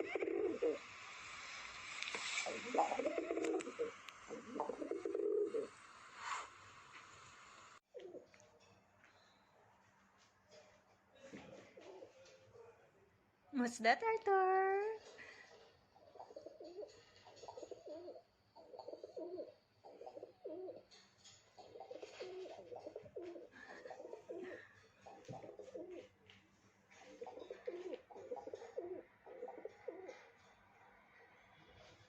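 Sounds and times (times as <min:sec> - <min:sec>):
pigeon cooing: 0:00.0 - 0:01.0, 0:02.2 - 0:05.7, 0:07.9 - 0:08.3, 0:11.5 - 0:12.2, 0:16.0 - 0:26.1, 0:26.9 - 0:30.3.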